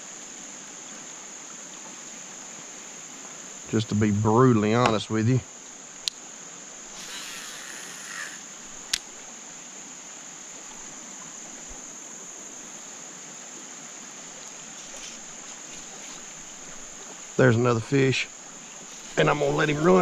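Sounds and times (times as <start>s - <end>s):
trickle of runoff water: 0.0s - 4.2s, 5.0s - 20.0s
insects trilling: 0.0s - 20.0s
sharp click: 8.8s - 9.1s.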